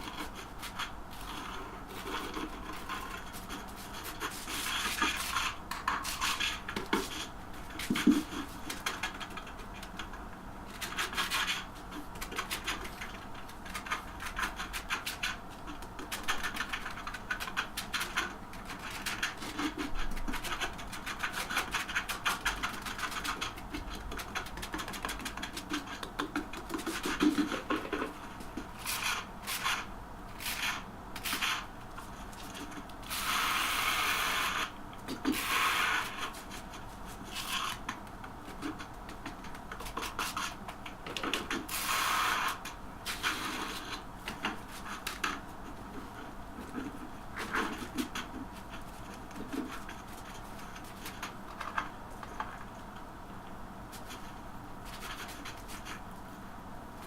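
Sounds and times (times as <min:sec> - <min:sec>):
scraping and rubbing on tile: 0:00.0 - 0:52.6
steady hiss: 0:33.0 - 0:37.9, 0:41.5 - 0:49.2.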